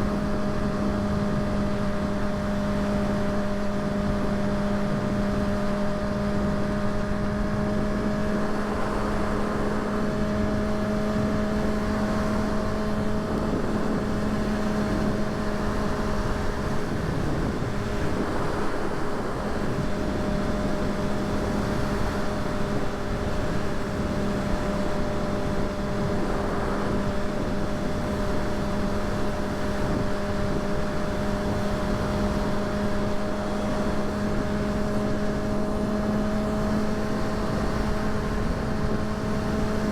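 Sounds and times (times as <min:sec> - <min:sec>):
motorcycle engine cruising: 0:00.0 - 0:39.9
rushing noise: 0:25.1 - 0:28.8.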